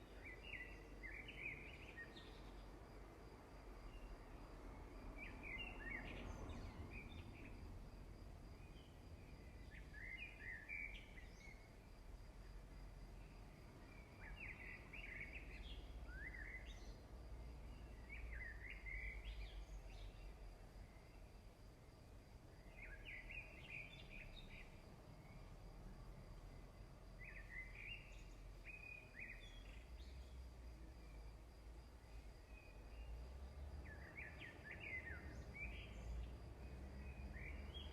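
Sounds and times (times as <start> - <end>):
bird chirping: 0.0 - 2.7, 5.2 - 7.6, 8.6 - 11.7, 13.8 - 17.0, 17.6 - 21.2, 22.6 - 25.6, 27.2 - 30.4, 33.8 - 37.9.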